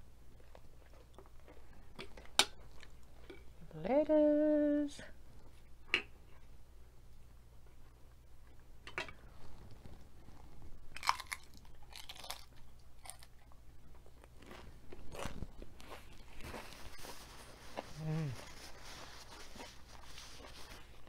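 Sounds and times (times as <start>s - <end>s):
crunchy chip chewing: 10.9s - 21.0s.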